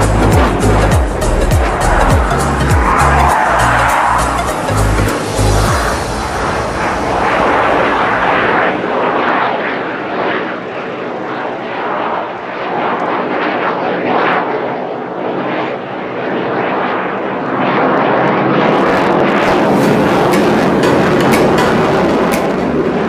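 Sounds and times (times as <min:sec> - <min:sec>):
aircraft flying over: 0:00.0 - 0:23.0.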